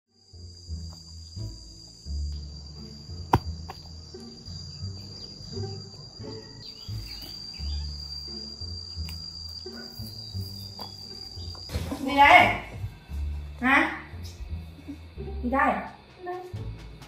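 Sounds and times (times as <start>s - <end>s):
insect drone: 0.1s - 17.0s
low background music: 0.1s - 17.0s.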